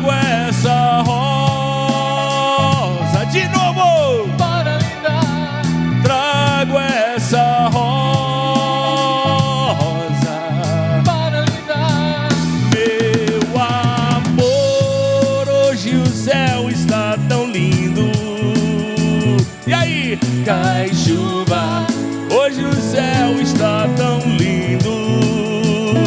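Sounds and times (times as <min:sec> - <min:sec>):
drum kit beat: 0:00.0 - 0:26.0
live band music: 0:00.0 - 0:26.0
pulsing bass line: 0:14.4 - 0:26.0
wavering lead melody: 0:14.4 - 0:26.0.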